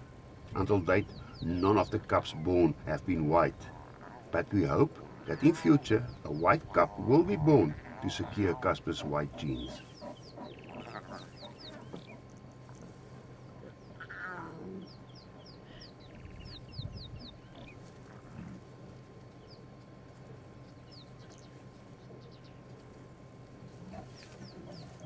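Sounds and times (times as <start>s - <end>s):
birds chirping: 0.0s - 25.0s
faint low hum: 0.0s - 25.0s.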